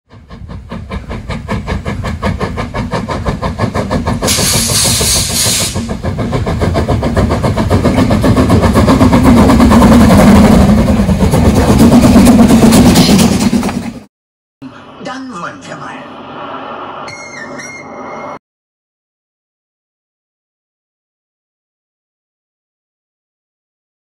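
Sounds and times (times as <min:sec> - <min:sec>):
steam locomotive exhaust beating: 0:00.1 - 0:14.1
steam hiss: 0:02.5 - 0:06.0.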